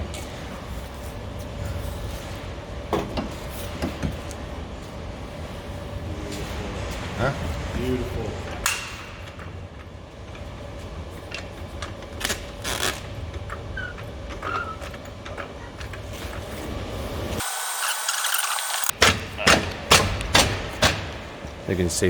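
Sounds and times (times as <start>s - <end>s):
sharp knocks: 19.0s - 21.5s.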